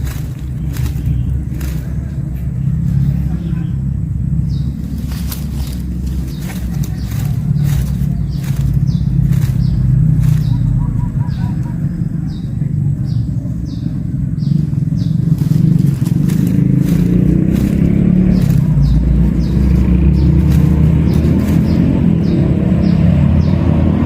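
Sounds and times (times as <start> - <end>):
engine rumbling: 0.0 - 24.0.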